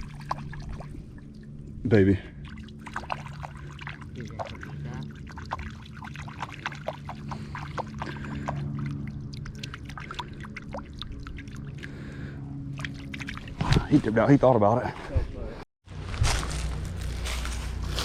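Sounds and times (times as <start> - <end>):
water trickling and dripping: 0.0 - 12.1.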